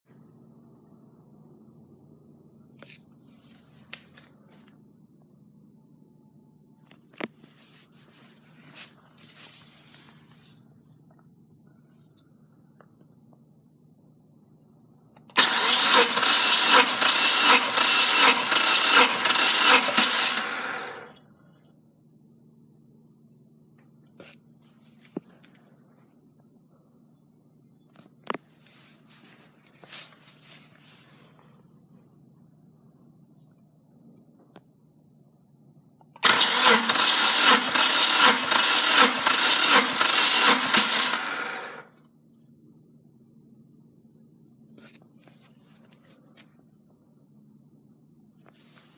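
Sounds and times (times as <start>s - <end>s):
car engine cranking: 15.4s - 21.1s, 36.2s - 41.8s.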